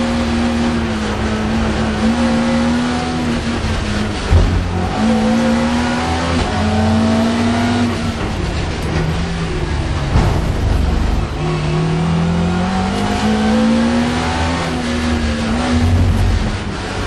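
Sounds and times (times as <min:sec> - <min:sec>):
car engine revving hard: 0:00.0 - 0:08.7, 0:10.9 - 0:17.0
thump: 0:04.3 - 0:05.0, 0:10.0 - 0:11.5.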